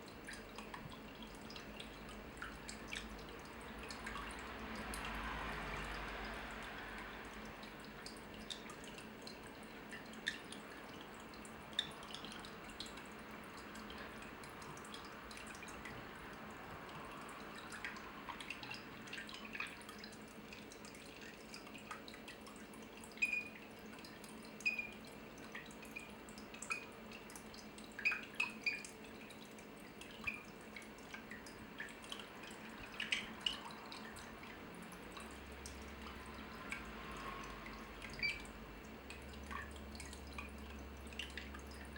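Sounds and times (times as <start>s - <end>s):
water drops plinking: 23.1s - 27.3s, 28.0s - 29.0s, 35.2s - 41.7s.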